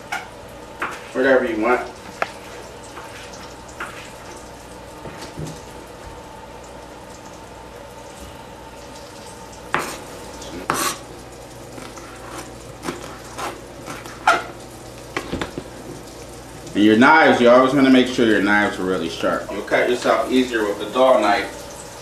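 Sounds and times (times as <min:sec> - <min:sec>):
food sizzling in a pan: 0:00.0 - 0:05.9, 0:06.7 - 0:22.0
knife on plastic cutting board: 0:09.7 - 0:11.0, 0:11.8 - 0:14.5.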